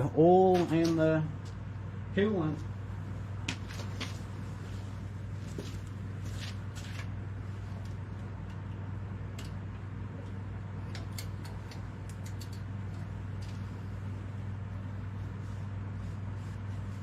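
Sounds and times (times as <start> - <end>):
steady low hum: 0.0 - 17.0
light handling clicks and rustles: 7.8 - 13.8.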